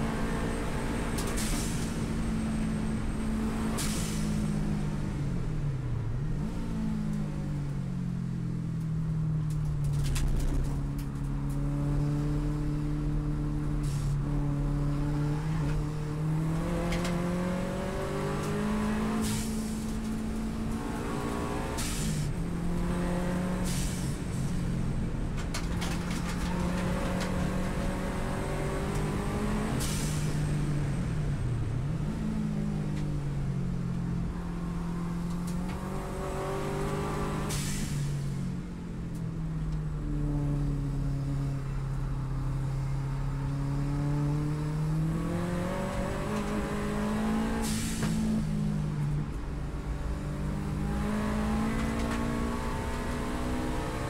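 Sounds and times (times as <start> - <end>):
racing car engine revving: 50.4 - 54.0.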